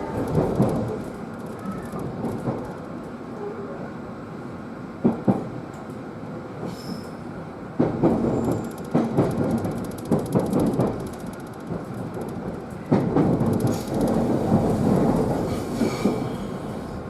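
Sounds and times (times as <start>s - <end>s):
train rumble: 0.0s - 17.0s
train wheels knocking over rail joints: 7.8s - 16.2s.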